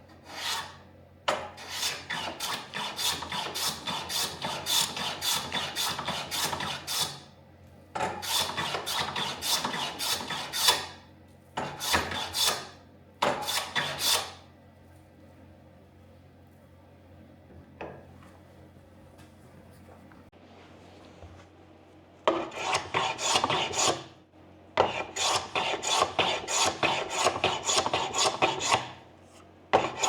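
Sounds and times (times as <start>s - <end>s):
hand plane shaving wood: 0.2s - 0.8s, 1.6s - 7.2s, 8.2s - 10.9s, 11.6s - 12.7s, 13.3s - 14.4s, 22.3s - 24.0s, 24.9s - 28.9s, 29.8s - 30.0s.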